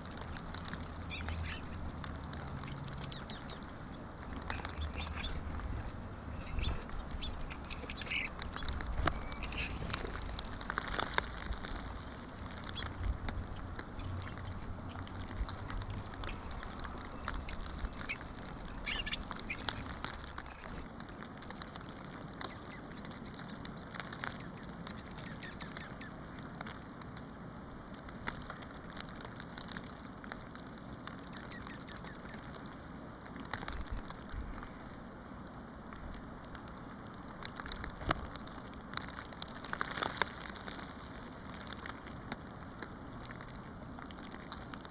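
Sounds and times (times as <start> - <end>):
birds chirping: 0.0 - 20.9, 22.2 - 27.0, 30.7 - 32.5
faint scattered clicks: 0.0 - 35.0.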